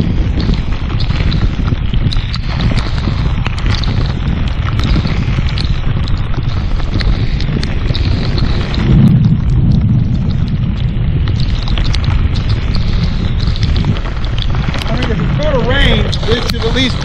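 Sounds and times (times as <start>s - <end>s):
heavy rain: 0.0s - 17.0s
raindrops tapping camera: 0.0s - 17.0s
wind buffeting microphone: 0.0s - 17.0s.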